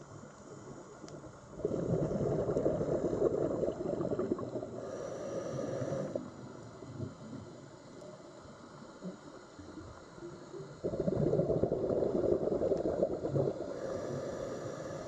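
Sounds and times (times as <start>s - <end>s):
underwater gurgling: 0.6s - 15.0s
bubbling: 1.5s - 4.8s, 10.8s - 14.4s.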